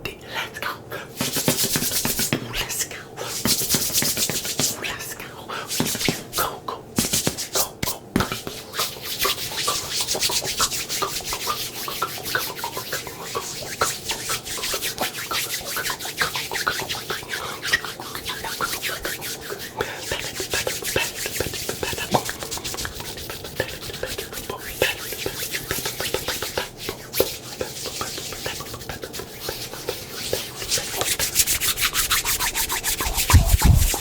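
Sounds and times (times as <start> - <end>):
brush scraping over microphone: 30.2 - 34.0.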